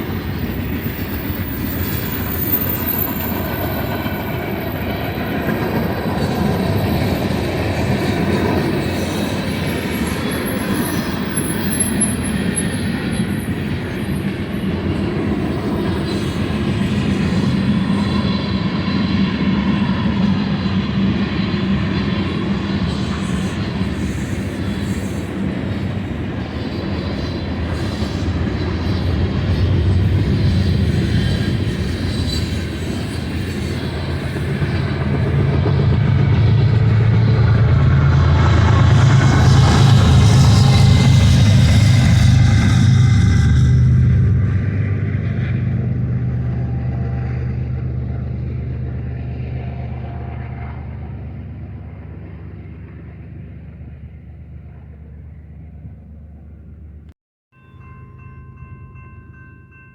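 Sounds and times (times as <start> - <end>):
train wheels rumbling on rail: 0.0 - 57.0
wheel squeal: 6.2 - 19.2, 22.1 - 35.6.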